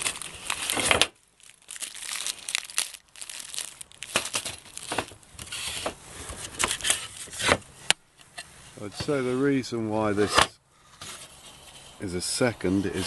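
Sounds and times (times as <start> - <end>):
packaging crumpled and rustled: 0.0 - 5.8.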